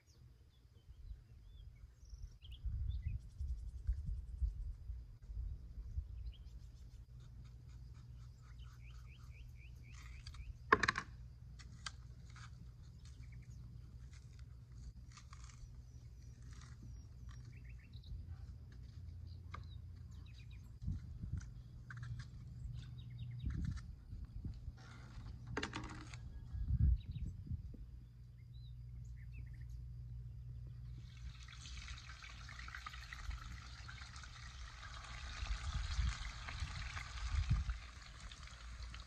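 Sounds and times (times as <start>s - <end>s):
birds chirping and trilling: 0.0s - 4.4s, 5.8s - 11.3s, 12.3s - 14.4s, 15.1s - 24.1s, 24.8s - 31.4s
steady low hum: 0.0s - 39.0s.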